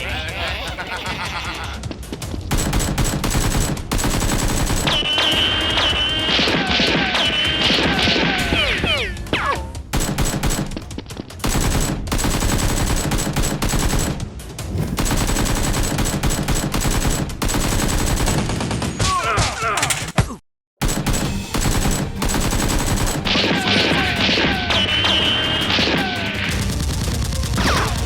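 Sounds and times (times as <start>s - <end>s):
rapid automatic gunfire: 2.5s - 8.0s, 9.9s - 10.8s, 11.4s - 14.2s, 15.0s - 19.0s, 20.8s - 28.0s.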